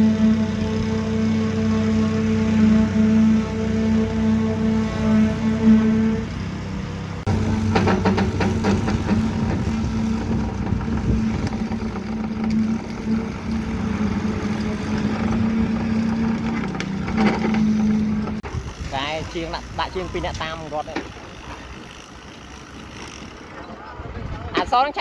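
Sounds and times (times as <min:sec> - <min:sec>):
heavy machine engine running: 0:00.0 - 0:24.4.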